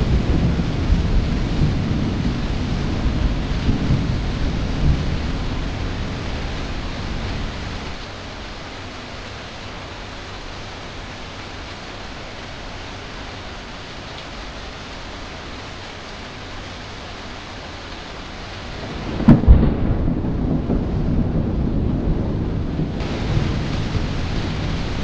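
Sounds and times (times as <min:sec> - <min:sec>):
low rumble of thunder: 0:00.0 - 0:08.0, 0:18.7 - 0:25.0
steady rain falling: 0:00.0 - 0:25.0.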